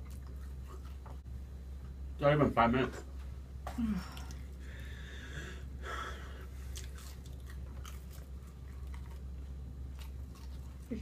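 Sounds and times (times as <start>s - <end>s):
people chewing: 0.0s - 1.2s, 6.1s - 11.0s
steady low hum: 0.0s - 11.0s.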